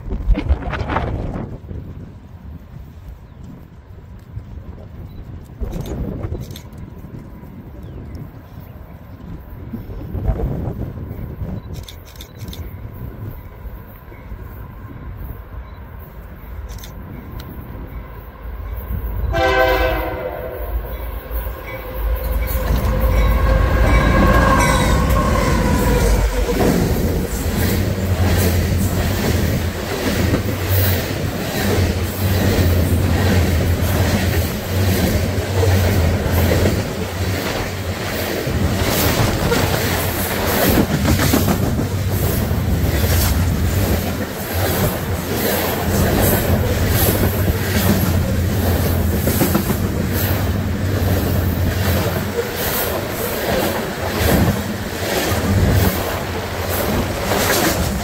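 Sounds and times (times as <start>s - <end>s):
train passing rumble: 0.0s - 58.0s
train horn blasts: 19.2s - 26.5s
wheels clacking over rail joints: 20.9s - 58.0s.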